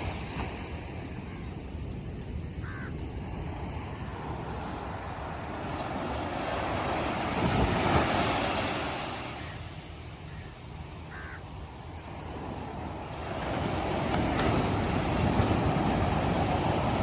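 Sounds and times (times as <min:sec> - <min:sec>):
wave breaking on beach: 0:12.9 - 0:17.0.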